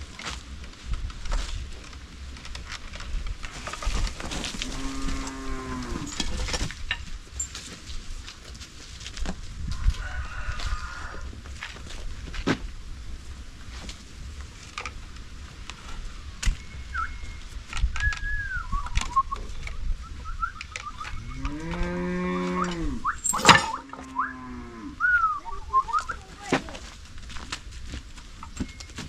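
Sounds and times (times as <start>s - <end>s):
bull mooing: 4.6s - 6.2s, 21.1s - 25.5s
sharp clicks: 17.7s - 19.8s, 20.4s - 21.9s
bird chirps: 18.0s - 21.5s.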